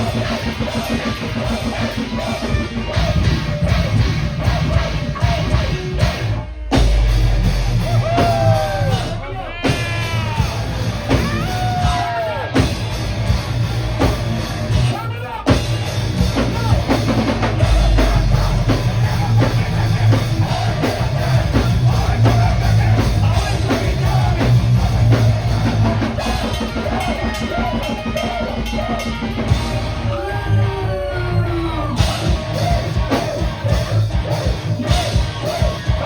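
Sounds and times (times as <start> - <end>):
drum kit: 0.0 - 36.0
heavy metal band playing: 0.0 - 36.0.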